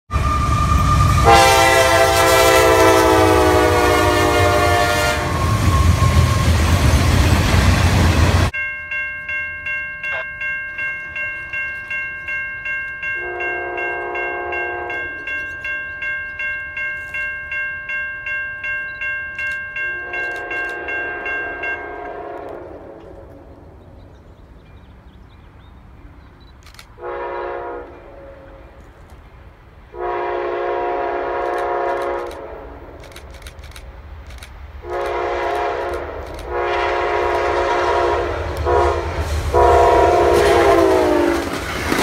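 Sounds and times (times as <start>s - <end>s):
train horn blasts: 0.1s - 6.8s, 13.2s - 15.3s, 19.9s - 23.4s, 27.0s - 28.8s, 29.9s - 33.0s, 34.8s - 41.6s
railroad crossing bell ringing: 0.1s - 7.4s, 8.5s - 23.2s, 36.5s - 41.3s
diesel locomotives running: 0.1s - 9.3s, 10.1s - 42.0s.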